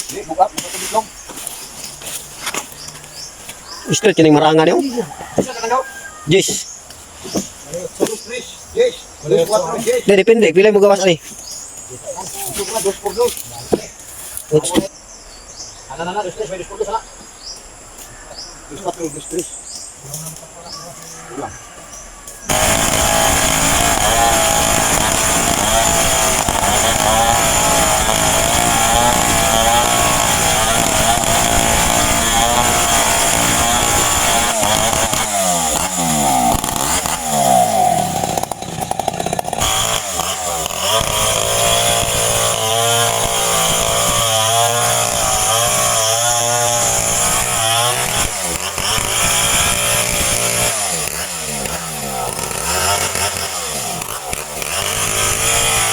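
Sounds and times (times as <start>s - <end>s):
chainsaw cutting: 22.4s - 55.9s.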